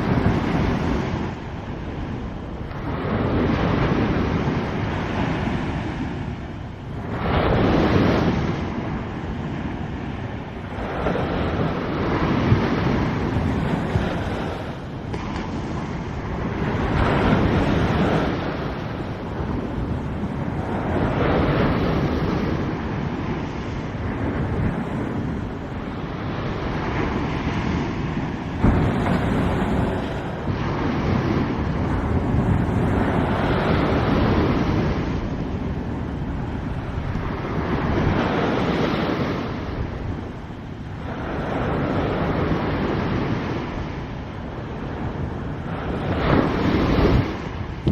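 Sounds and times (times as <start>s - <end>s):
surf breaking on beach: 0.0s - 47.9s
wind buffeting microphone: 0.0s - 47.9s.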